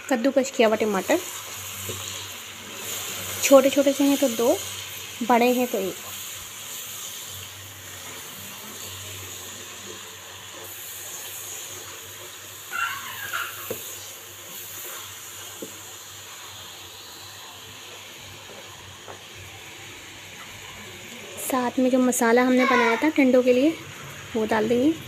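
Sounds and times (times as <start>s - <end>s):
food sizzling in hot oil: 0.0s - 25.0s
high-pitched voice-like call: 12.7s - 13.7s.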